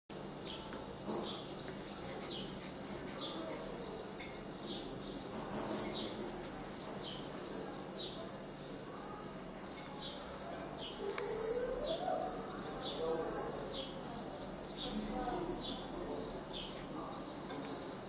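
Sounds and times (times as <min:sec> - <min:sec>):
faint low murmur: 0:00.1 - 0:18.0
small birds chirping: 0:00.2 - 0:18.0.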